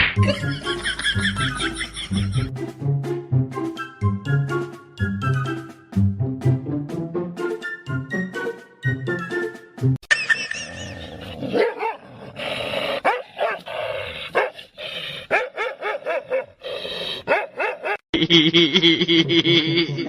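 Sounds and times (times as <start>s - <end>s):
dog barking and yipping: 11.5s - 12.0s, 13.0s - 13.7s, 14.3s - 14.6s, 15.3s - 16.6s, 17.2s - 18.0s.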